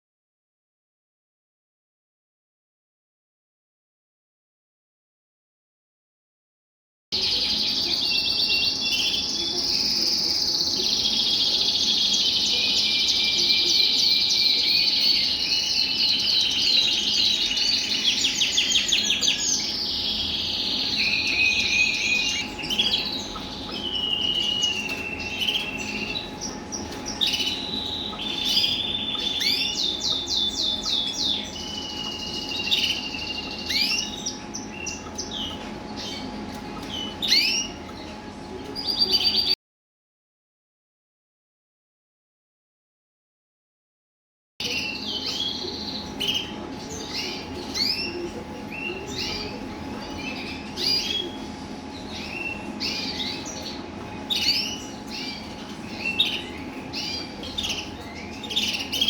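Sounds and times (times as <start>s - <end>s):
canaries singing trills and chirps: 7.1s - 39.6s, 44.6s - 59.0s.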